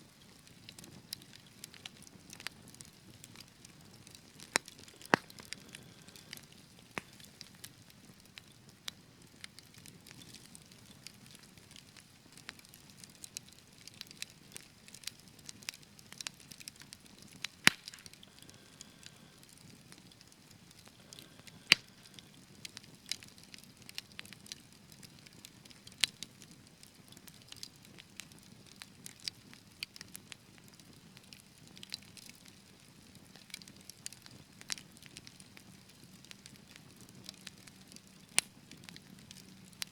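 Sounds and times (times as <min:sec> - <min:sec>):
wood fire crackling: 0:00.0 - 0:39.9
sharp loud fire pops: 0:17.7 - 0:18.1.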